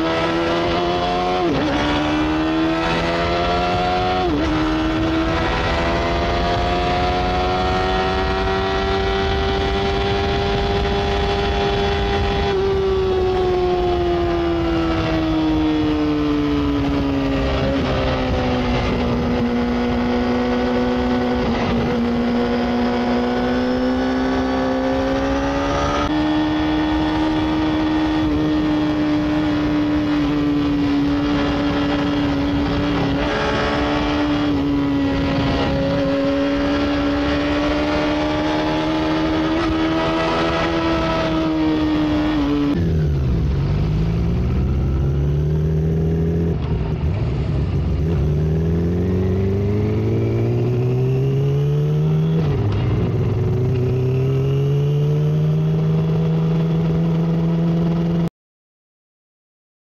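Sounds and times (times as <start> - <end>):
wind rush: 0.0 - 23.3, 25.0 - 45.1
motorcycle engine at high revs: 0.0 - 58.3.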